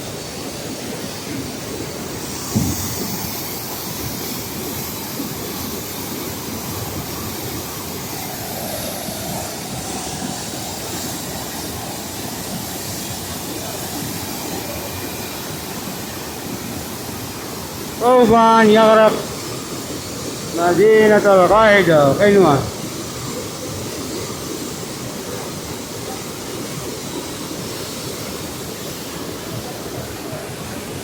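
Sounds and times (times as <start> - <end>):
flood water rushing: 0.0 - 31.0
short thump: 2.4 - 3.1.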